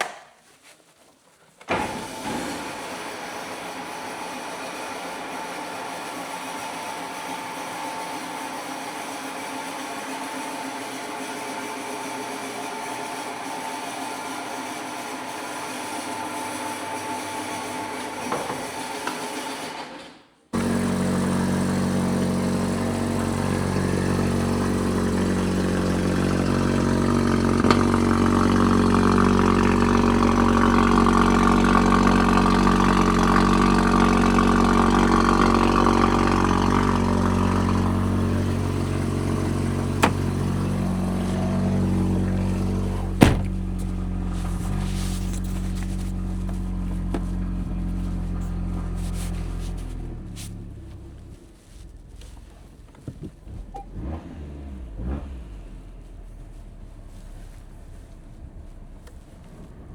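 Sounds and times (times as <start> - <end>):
car engine running: 20.6 - 59.9
road noise: 20.6 - 59.9
sharp knocks: 43.2 - 43.6.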